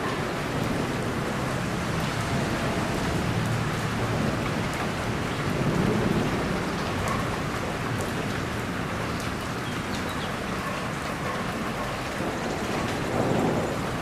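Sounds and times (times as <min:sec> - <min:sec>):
rolling thunder rumble: 0:00.0 - 0:08.9, 0:12.2 - 0:14.0
heavy rain falling: 0:00.0 - 0:14.0.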